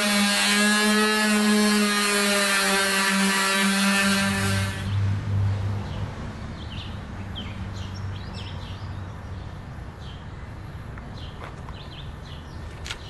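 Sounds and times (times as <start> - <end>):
power tool whine: 0.0 - 5.0
outdoor background noise: 0.0 - 13.0
birds chirping: 5.8 - 13.0.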